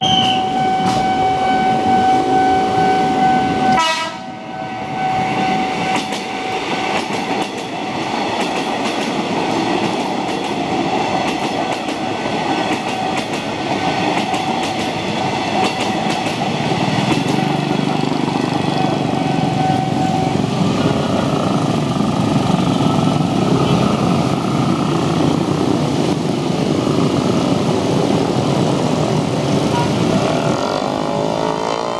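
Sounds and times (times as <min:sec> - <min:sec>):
crossing warning beeps: 0:00.0 - 0:07.4, 0:18.3 - 0:21.0
train wheels rumbling and clattering: 0:00.1 - 0:01.2, 0:05.1 - 0:31.9.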